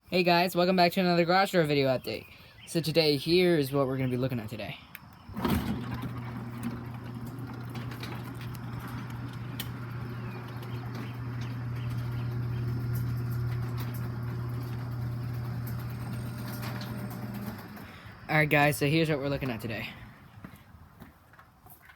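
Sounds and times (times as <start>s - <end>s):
garage door opener motor humming: 5.2s - 20.3s.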